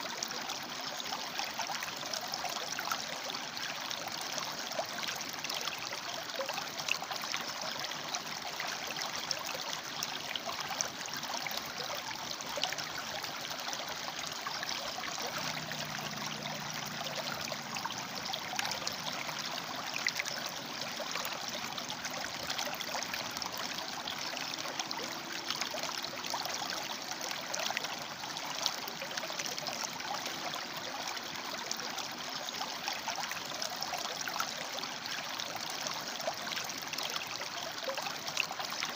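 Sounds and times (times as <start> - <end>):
river water splashing over rocks: 0.0 - 38.9.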